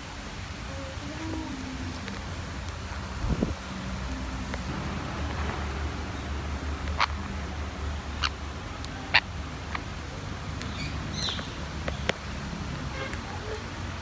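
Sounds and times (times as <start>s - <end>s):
low rumble: 1.8s - 11.2s.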